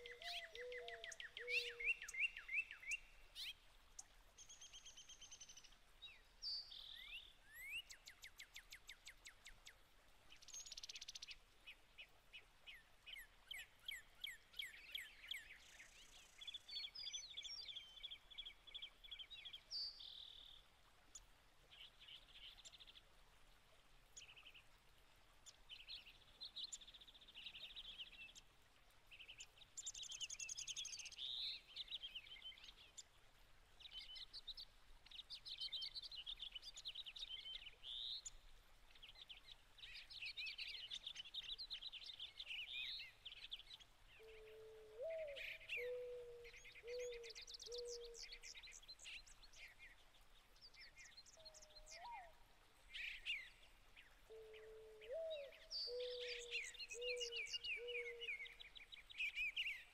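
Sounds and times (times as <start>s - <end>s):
songbirds chirping and trilling: 0.0s - 23.1s, 33.8s - 59.9s.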